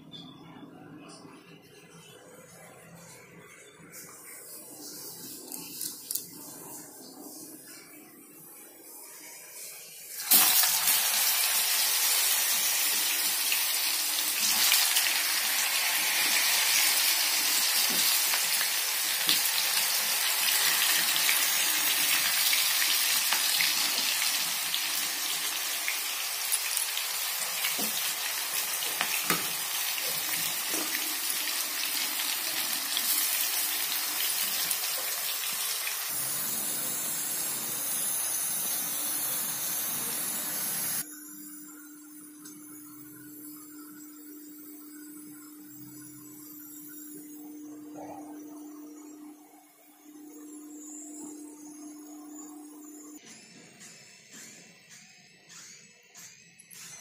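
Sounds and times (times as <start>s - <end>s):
banana slices sizzling in oil: 10.1s - 41.0s.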